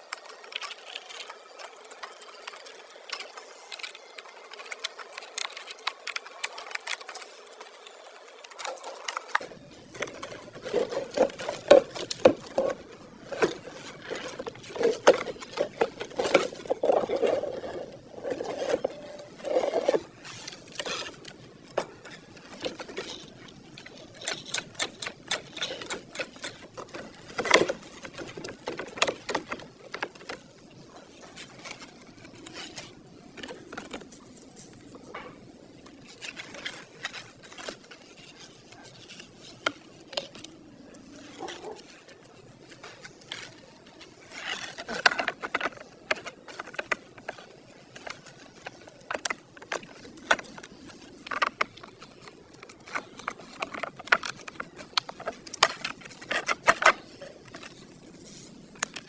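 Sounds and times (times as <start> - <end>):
hand tools clicking and tapping: 0.0 - 30.5.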